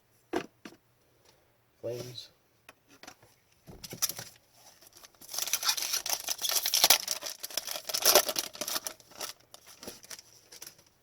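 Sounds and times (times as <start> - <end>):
foil wrapper crinkling and tearing: 4.0 - 11.0.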